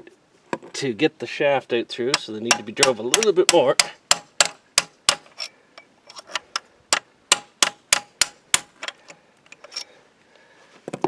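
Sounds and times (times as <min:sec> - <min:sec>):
hammer clanging on metal: 0:02.1 - 0:05.4, 0:07.3 - 0:08.7.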